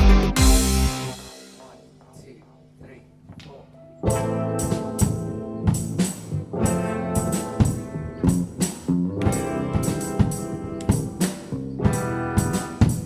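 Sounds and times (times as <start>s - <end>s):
drum hits: 0.0s - 1.7s
brass section holding chords: 0.0s - 1.8s.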